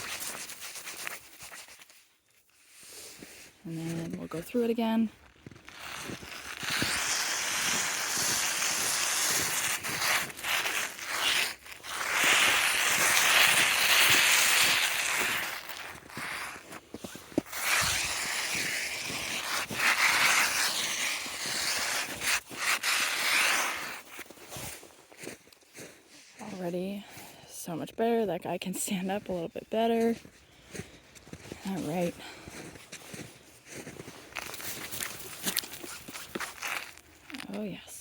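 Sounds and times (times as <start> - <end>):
ice scraped off fence tape: 0.0 - 3.2, 5.5 - 25.0, 33.8 - 37.8.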